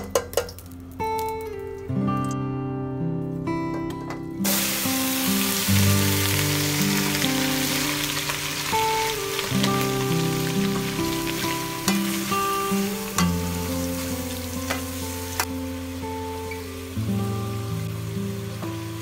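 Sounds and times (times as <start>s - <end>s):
guitar music: 0.0s - 19.0s
chicken sizzling in hot oil: 4.4s - 19.0s.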